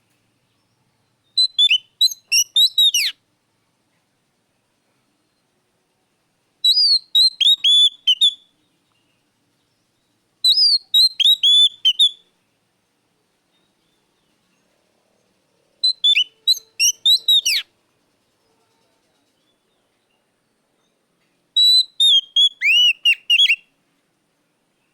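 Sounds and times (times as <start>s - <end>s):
bird singing whistled notes: 0.5s - 3.2s, 6.6s - 12.3s, 15.8s - 17.7s, 21.6s - 23.7s.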